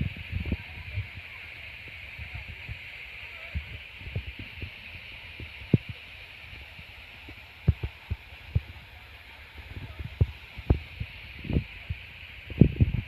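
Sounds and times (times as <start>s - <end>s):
waterfall hissing: 0.0s - 13.0s
low thumps on microphone: 9.8s - 13.0s.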